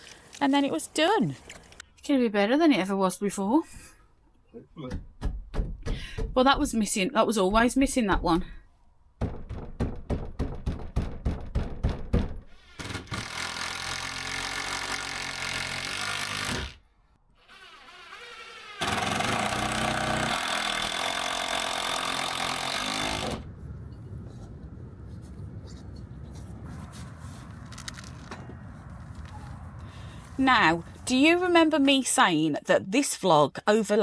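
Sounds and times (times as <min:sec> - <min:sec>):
power tool running: 0:12.8 - 0:16.8, 0:17.4 - 0:23.5.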